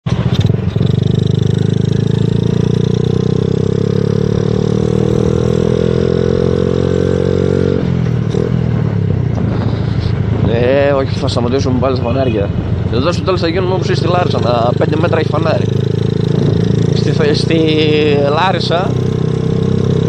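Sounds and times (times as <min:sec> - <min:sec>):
small motorcycle engine revving: 0:00.1 - 0:08.6, 0:14.2 - 0:20.0.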